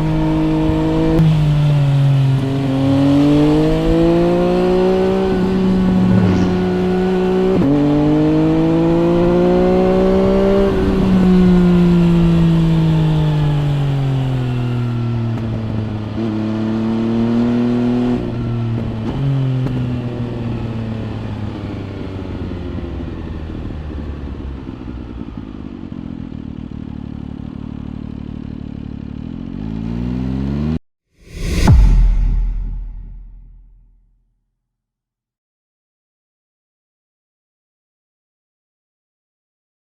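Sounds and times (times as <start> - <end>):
loud burst: 31.3 - 33.8.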